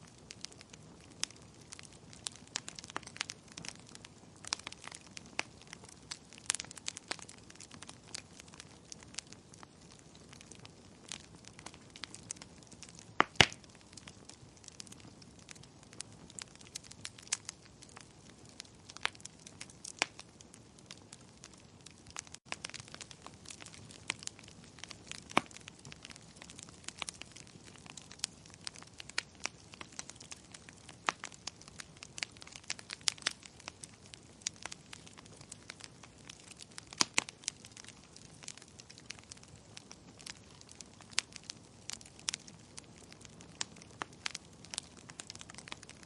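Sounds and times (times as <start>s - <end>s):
wood fire crackling: 0.0s - 46.0s.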